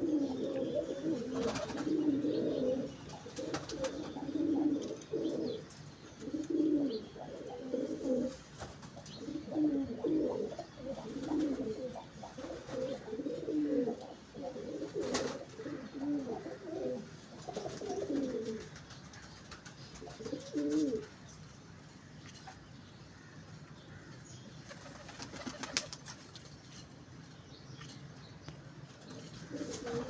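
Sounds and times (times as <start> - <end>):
pigeons cooing: 0.0 - 18.8, 19.9 - 21.1, 29.0 - 30.0.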